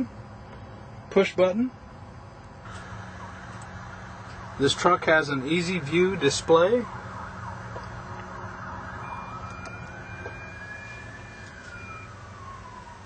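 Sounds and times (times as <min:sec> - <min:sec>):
steady low hum: 0:00.0 - 0:13.0
distant siren wailing: 0:02.6 - 0:13.0.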